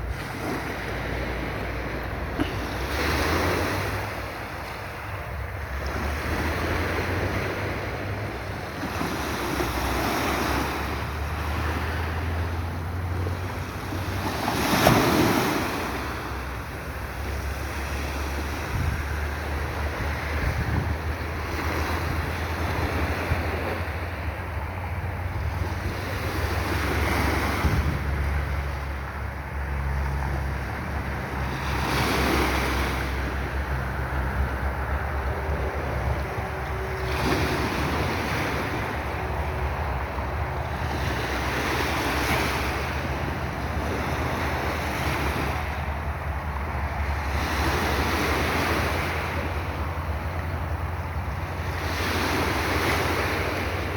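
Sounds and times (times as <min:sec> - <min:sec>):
sea waves on shore: 0:00.0 - 0:53.9
wind rumbling on microphone: 0:00.0 - 0:53.9.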